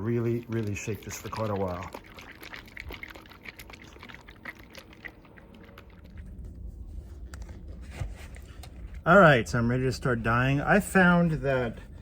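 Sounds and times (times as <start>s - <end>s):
bottle shaken with liquid sloshing: 0.0s - 9.0s.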